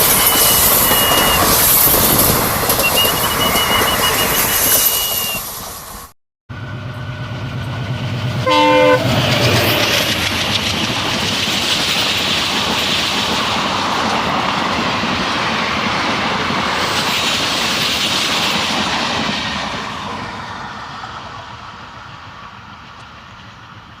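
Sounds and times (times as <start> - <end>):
train horn blast: 8.4 - 9.3
train wheels clattering over rails: 9.1 - 23.8.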